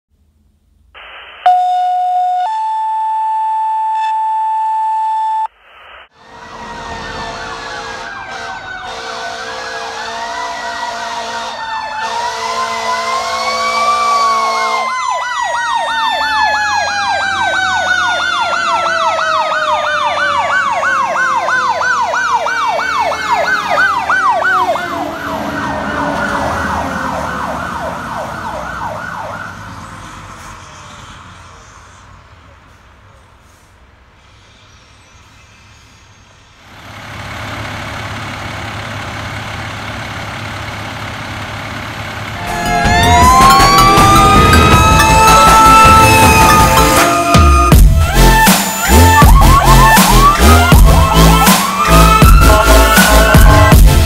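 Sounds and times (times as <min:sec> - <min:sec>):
yelping electronic siren: 0:01.4 - 0:05.5, 0:06.3 - 0:29.5, 0:42.4 - 0:54.0
two-note warning tone: 0:01.5 - 0:05.5, 0:42.4 - 0:53.9
air horn blasts: 0:06.2 - 0:14.9, 0:42.4 - 0:54.0.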